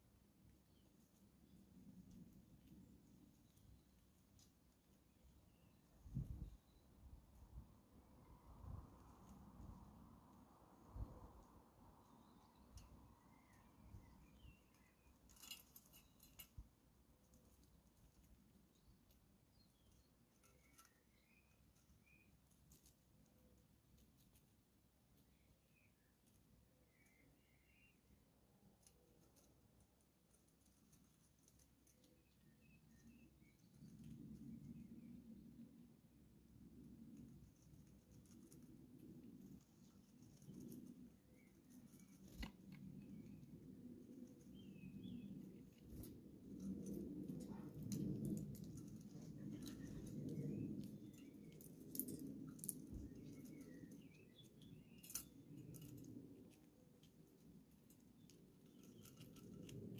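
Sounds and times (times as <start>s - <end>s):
faint bird chirps: 12.0s - 16.5s, 18.7s - 22.5s, 25.2s - 29.5s, 31.3s - 35.6s.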